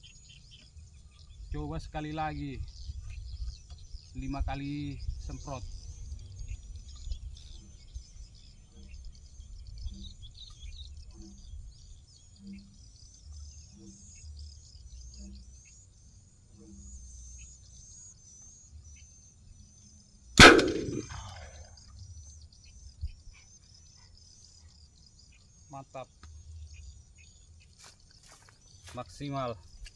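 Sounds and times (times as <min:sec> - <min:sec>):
birds and insects chirping: 0:00.0 - 0:29.9
low wind noise: 0:00.8 - 0:12.6
loud bird-scaring gun bang: 0:20.4 - 0:21.7.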